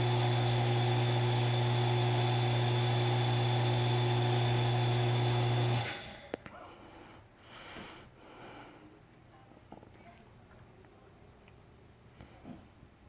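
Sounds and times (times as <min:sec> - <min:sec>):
electrical hum: 0:00.0 - 0:06.5.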